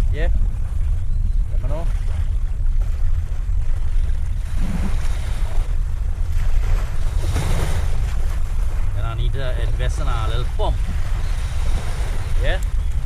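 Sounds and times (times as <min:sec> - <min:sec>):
waves washing: 0:00.0 - 0:13.0
wind buffeting microphone: 0:00.0 - 0:13.0.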